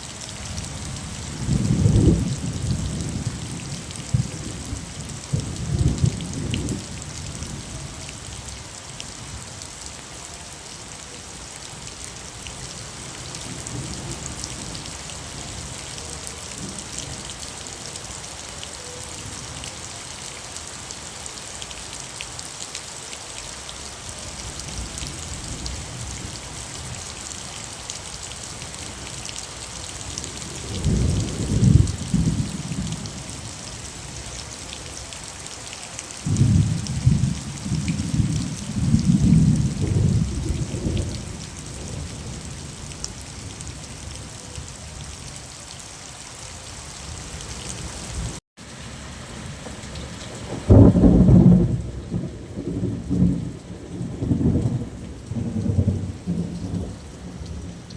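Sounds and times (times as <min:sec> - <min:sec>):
steady rain falling: 0:00.0 - 0:57.9
low rolls of thunder: 0:01.4 - 0:07.7, 0:30.2 - 0:33.3, 0:36.2 - 0:43.8, 0:49.3 - 0:57.9.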